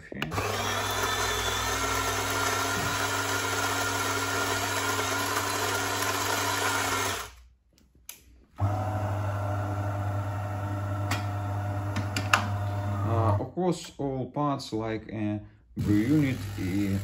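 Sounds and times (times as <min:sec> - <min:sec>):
coffee grinder running: 0:00.3 - 0:07.4, 0:08.6 - 0:13.4, 0:15.8 - 0:17.0
pump buzzing hum: 0:08.6 - 0:13.4.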